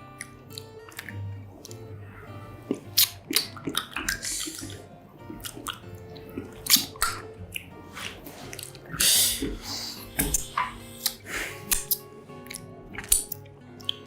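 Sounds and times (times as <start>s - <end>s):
wet chewing: 0.0s - 14.0s.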